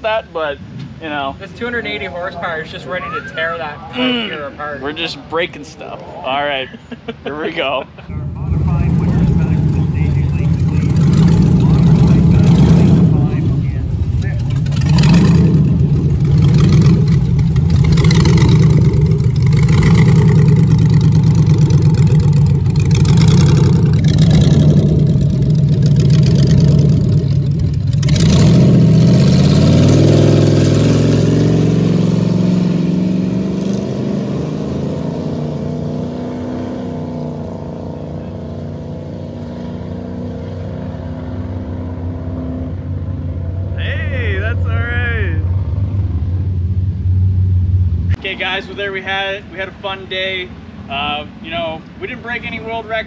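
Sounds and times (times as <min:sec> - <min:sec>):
race car engine at high revs: 0:08.1 - 0:43.8.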